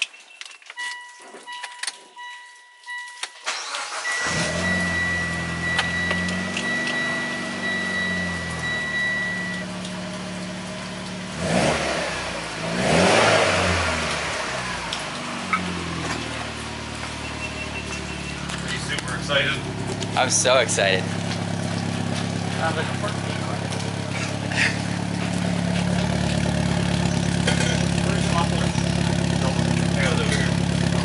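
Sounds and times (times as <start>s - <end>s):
electronic beeps: 0.0s - 9.7s, 17.2s - 18.4s
car engine starting and idling: 0.4s - 31.0s
engine revving: 3.5s - 31.0s.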